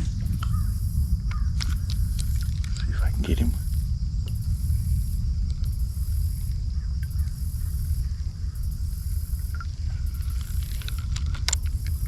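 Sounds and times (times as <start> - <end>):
insects buzzing in pulses: 0.0 - 12.0
wind rumble on microphone: 0.0 - 12.0.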